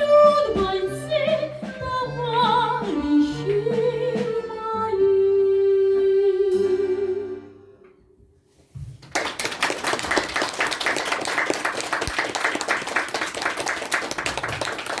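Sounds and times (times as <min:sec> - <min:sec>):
audience applauding: 0:09.0 - 0:15.0.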